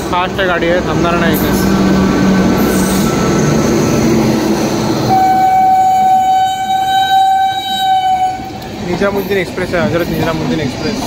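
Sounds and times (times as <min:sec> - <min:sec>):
train rushing past: 0:00.0 - 0:11.0
train horn blast: 0:05.1 - 0:08.6.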